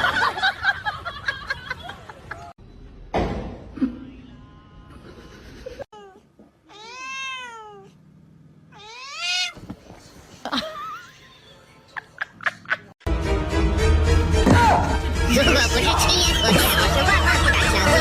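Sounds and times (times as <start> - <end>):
cat meowing: 6.0 - 8.0, 8.7 - 9.6.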